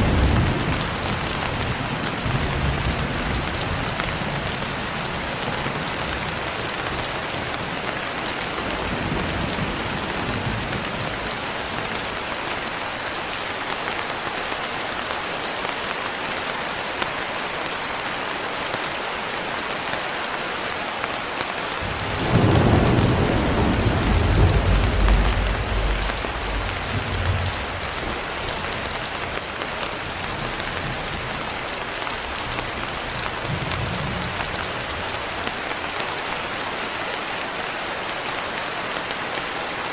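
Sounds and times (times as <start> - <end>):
thunder rumbling: 0.0 - 5.3, 21.8 - 29.4
heavy rain falling: 0.0 - 39.9.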